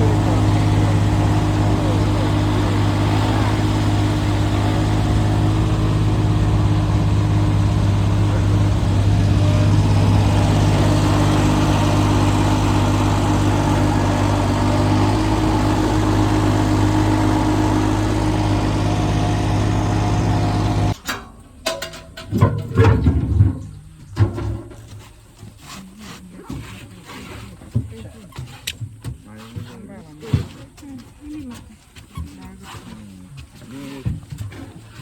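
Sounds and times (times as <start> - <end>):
engine running steadily: 0.0 - 21.0.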